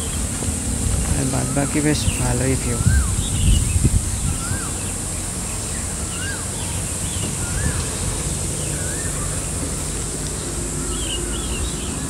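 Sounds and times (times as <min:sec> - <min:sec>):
insect drone: 0:00.0 - 0:12.0
bird whistled call: 0:01.2 - 0:04.9, 0:06.0 - 0:09.5.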